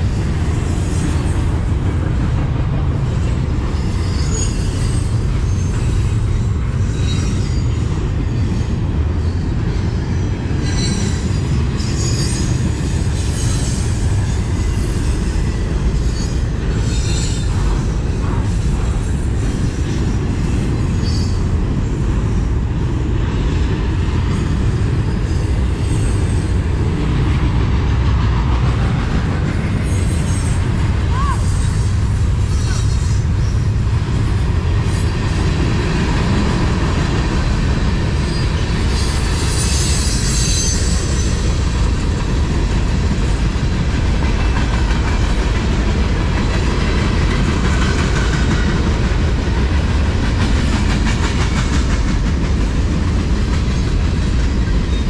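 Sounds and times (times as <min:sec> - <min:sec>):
train wheels rumbling on rails: 0:00.0 - 0:55.0
high-pitched wheel squeals: 0:03.7 - 0:09.5, 0:10.6 - 0:12.6, 0:38.3 - 0:41.4.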